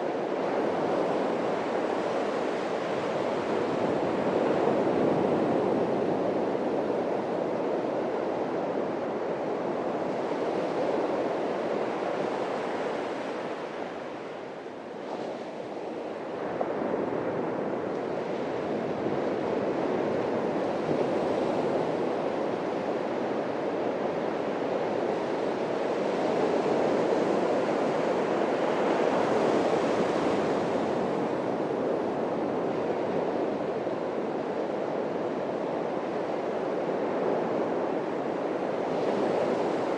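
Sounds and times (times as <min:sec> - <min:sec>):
surf breaking on a beach: 0:00.0 - 0:39.9.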